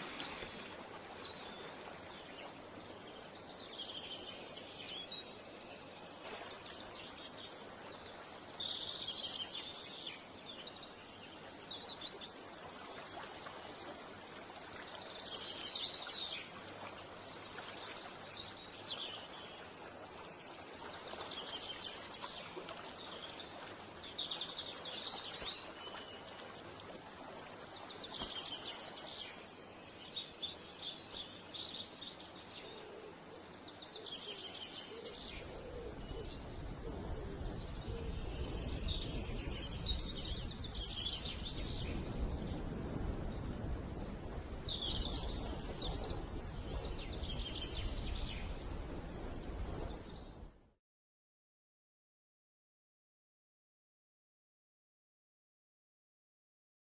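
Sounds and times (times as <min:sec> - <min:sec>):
songbird singing: 0:00.0 - 0:12.4, 0:27.8 - 0:50.4.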